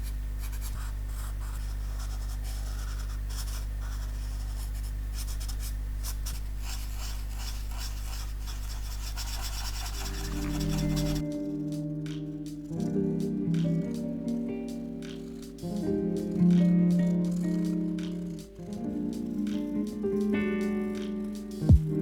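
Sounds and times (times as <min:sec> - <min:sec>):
pen scratching on paper: 0:00.0 - 0:11.2
music: 0:10.0 - 0:22.0.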